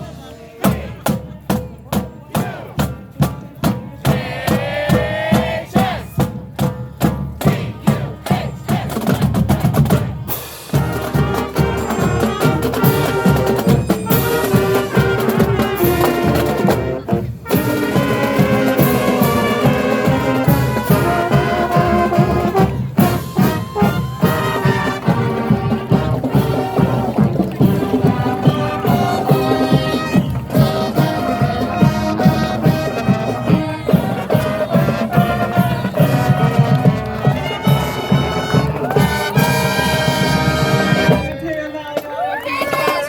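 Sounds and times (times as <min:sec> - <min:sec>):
marching band drumming: 0:00.6 - 0:41.6
brass and winds chords: 0:10.3 - 0:41.4.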